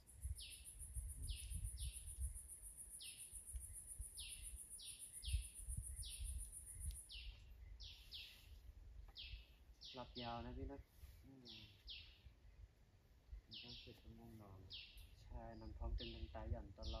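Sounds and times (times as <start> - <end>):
insect trill: 0.0 - 8.0
bird chirping: 0.0 - 17.0.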